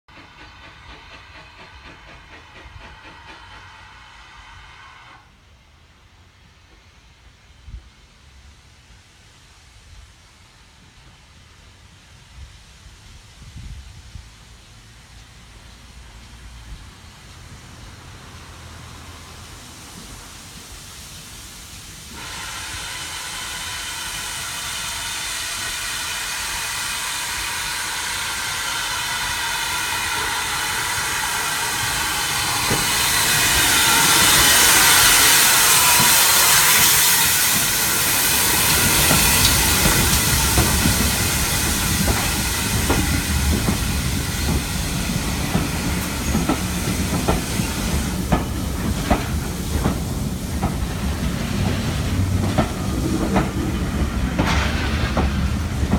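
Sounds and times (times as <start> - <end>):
train passing with loud hiss: 0.1 - 55.9
wheels clicking over rail joints: 38.4 - 55.9.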